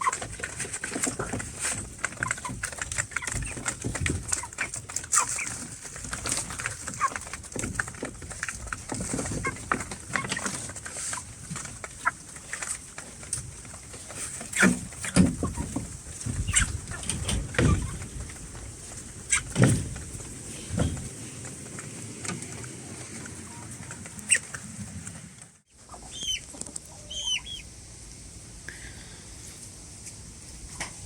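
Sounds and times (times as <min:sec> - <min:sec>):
chickens clucking: 0:00.0 - 0:28.6.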